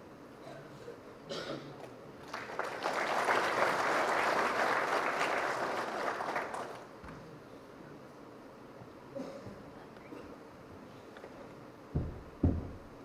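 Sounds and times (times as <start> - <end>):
audience applauding: 2.2 - 6.9.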